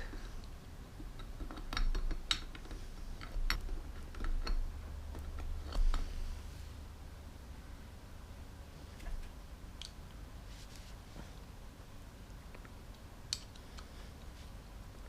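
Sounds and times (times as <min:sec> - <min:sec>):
metal parts clicking and tapping: 0:00.0 - 0:06.1
low steady hum: 0:00.0 - 0:15.0.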